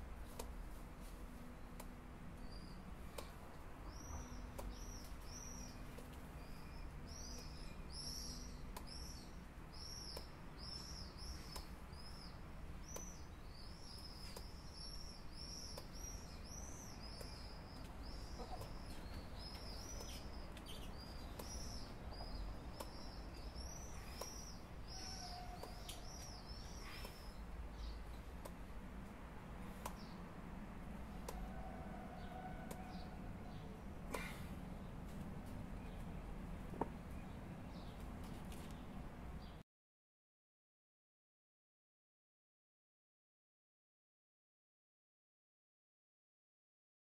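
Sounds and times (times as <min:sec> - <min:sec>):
bird chirping: 0:01.5 - 0:28.6, 0:29.6 - 0:30.3.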